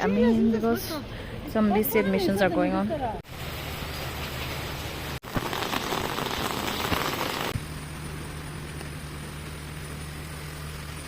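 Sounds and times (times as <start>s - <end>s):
heavy rain falling: 3.3s - 11.0s.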